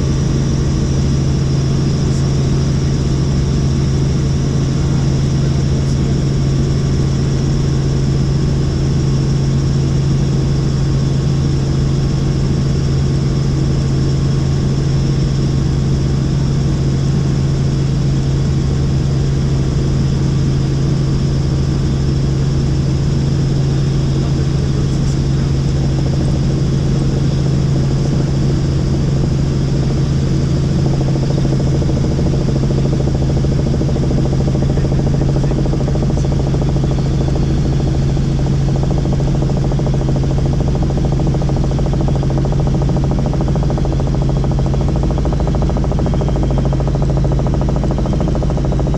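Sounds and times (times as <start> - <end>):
helicopter rotor and engine drone: 0.0 - 48.9.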